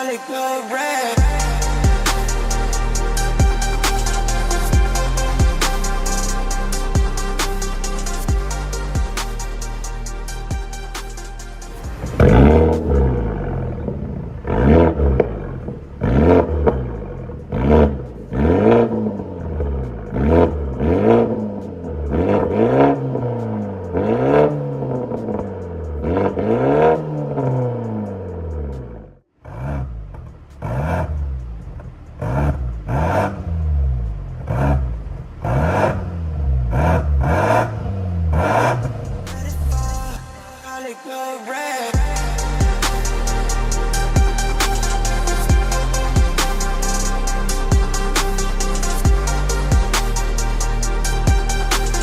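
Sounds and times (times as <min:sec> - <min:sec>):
car engine throttle blips: 0:01.2 - 0:40.2.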